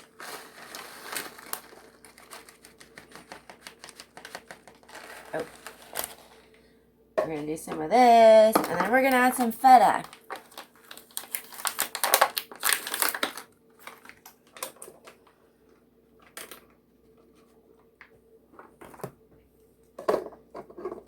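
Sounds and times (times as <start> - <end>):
plastic packaging crinkling: 0.0 - 6.6, 8.6 - 15.3.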